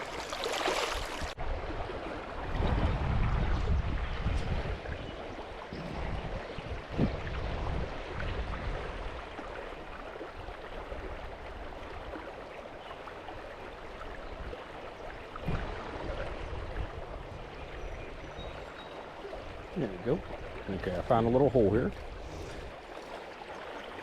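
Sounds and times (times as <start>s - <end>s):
creek water rushing: 0.0s - 24.0s.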